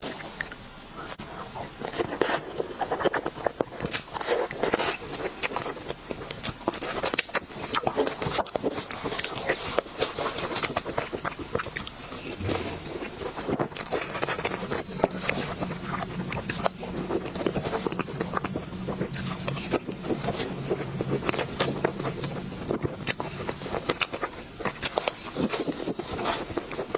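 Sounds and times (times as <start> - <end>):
chewing crunchy sweets: 0.0 - 26.9
mouth clicks: 11.6 - 26.7.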